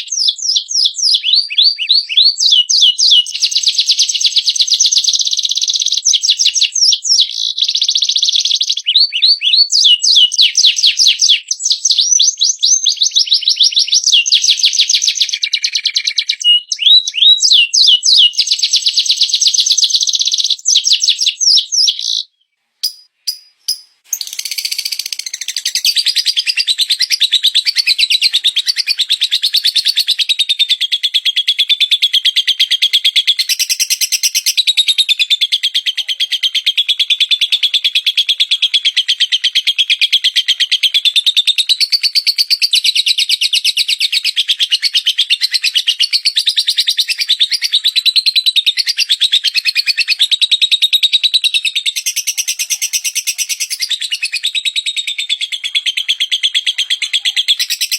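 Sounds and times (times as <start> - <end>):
high bird chirps and trills: 0.0 - 31.4, 51.7 - 57.9
long wavering high bird trill: 22.8 - 26.7.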